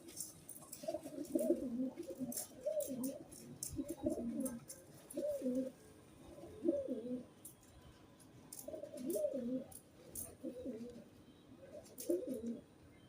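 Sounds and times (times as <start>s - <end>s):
pigeon cooing: 0.0s - 7.4s, 8.5s - 12.7s.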